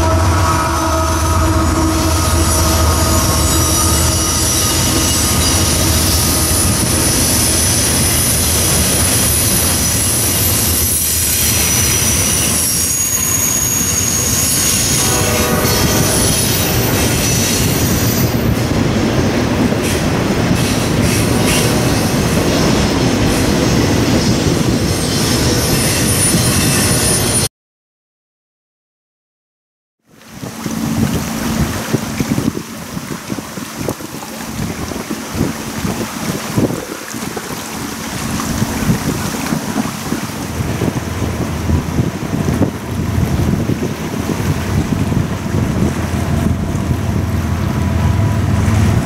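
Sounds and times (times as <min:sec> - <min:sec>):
freight train rumbling past: 0:00.0 - 0:27.5, 0:30.2 - 0:49.0
train wheels squealing: 0:01.6 - 0:18.6, 0:20.6 - 0:27.5.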